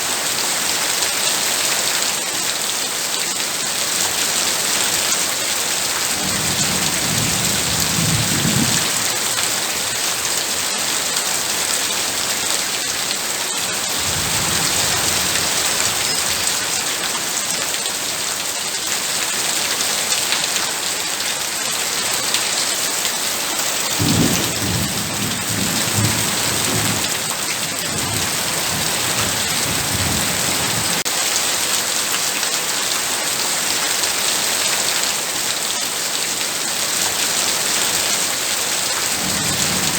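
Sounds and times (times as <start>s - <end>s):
heavy rain pouring: 0.0s - 39.9s
low thunder rumbles: 6.2s - 9.4s, 13.9s - 16.8s, 24.0s - 31.0s, 39.2s - 39.9s.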